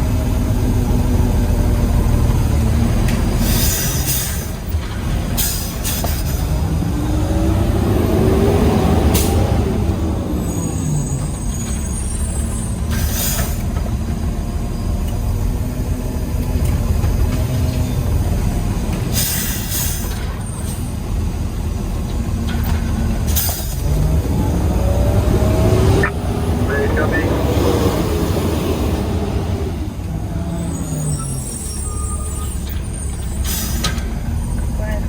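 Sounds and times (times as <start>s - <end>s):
diesel engine rumbling: 0.0s - 35.0s
air brake hisses: 10.8s - 13.7s, 19.2s - 20.8s, 30.8s - 34.0s.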